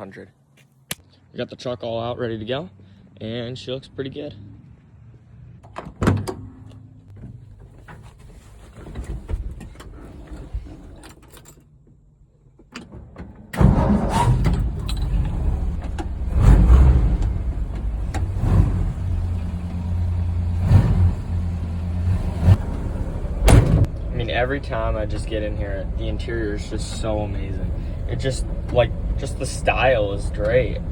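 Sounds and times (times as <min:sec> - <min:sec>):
truck engine starting and running: 0:12.5 - 0:30.9.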